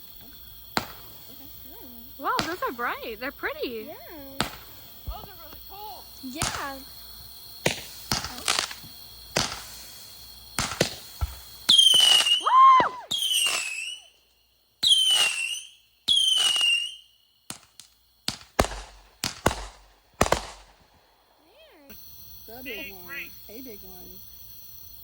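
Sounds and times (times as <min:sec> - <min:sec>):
descending firework whistles: 0:00.0 - 0:23.6
fireworks bangs and crackles: 0:00.0 - 0:23.8
person cheering: 0:12.4 - 0:13.2.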